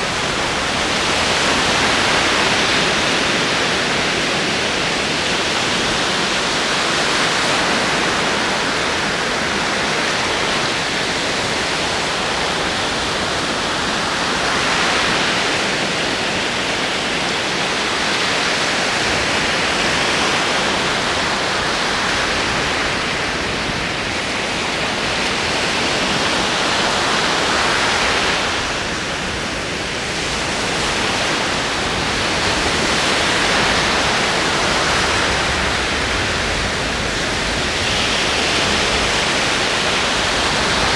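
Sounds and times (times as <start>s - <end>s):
ocean waves: 0.0s - 40.9s.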